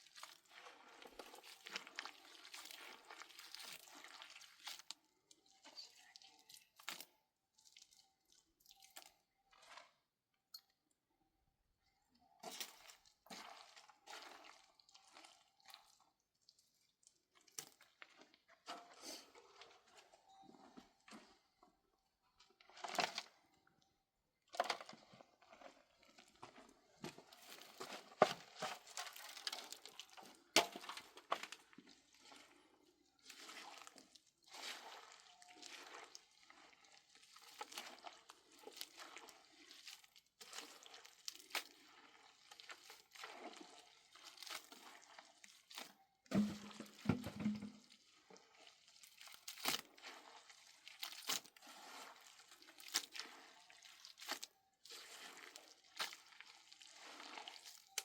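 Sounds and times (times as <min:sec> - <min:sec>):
crunching scraping and knocks: 0:46.3 - 0:47.8.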